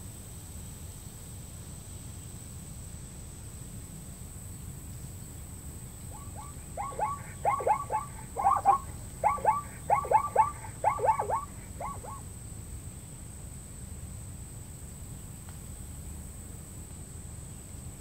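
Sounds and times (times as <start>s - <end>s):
low background rumble: 5.6s - 13.3s
animal calling: 6.2s - 12.2s
thin high tone: 6.2s - 12.2s.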